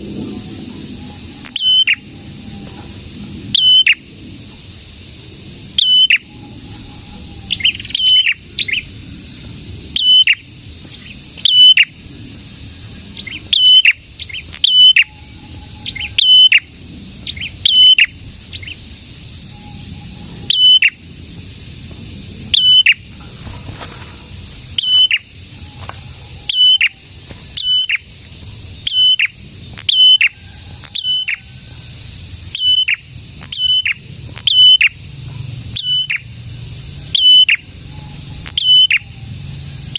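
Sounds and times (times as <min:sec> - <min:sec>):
songbird chirping: 0:00.0 - 0:21.0, 0:22.4 - 0:39.9
steady high hiss: 0:00.0 - 0:39.9.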